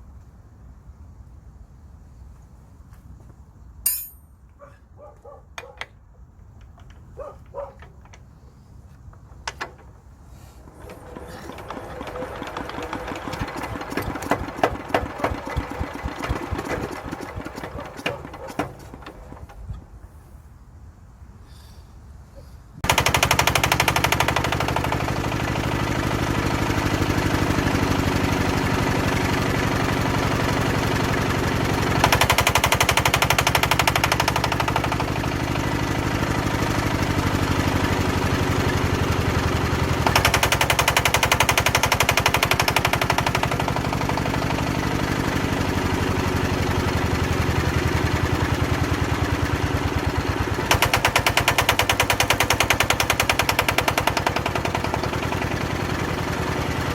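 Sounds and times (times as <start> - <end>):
diesel engine chugging: 10.2 - 19.6, 22.8 - 56.9.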